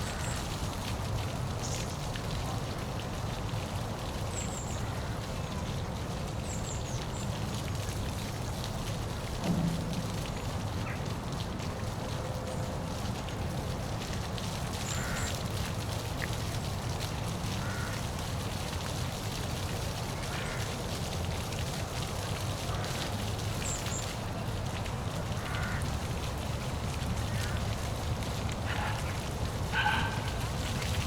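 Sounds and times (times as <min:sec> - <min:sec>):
waterfall rushing: 0:27.0 - 0:31.0
bird calls: 0:28.7 - 0:30.9.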